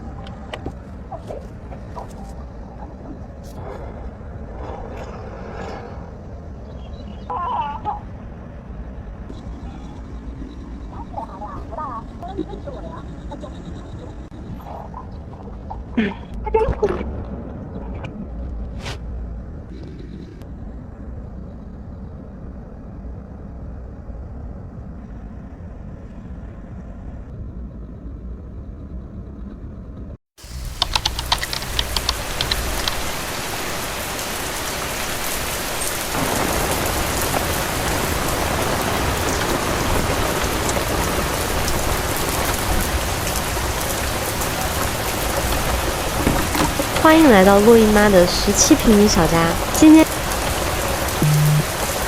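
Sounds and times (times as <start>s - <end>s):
sharp drip ticks: 30.4s - 34.0s
heavy rain hissing: 30.4s - 52.0s.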